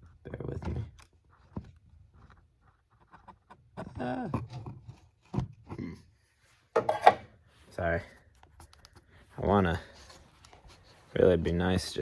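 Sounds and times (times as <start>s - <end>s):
camera handling rubbing and scraping: 8.2s - 11.8s.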